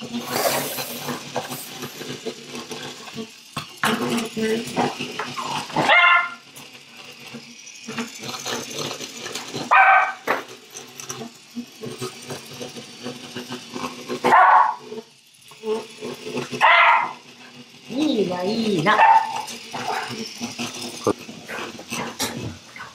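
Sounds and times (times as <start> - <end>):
dog barking: 5.8 - 6.4, 9.7 - 10.2, 14.3 - 14.8, 16.6 - 17.2, 18.9 - 19.5.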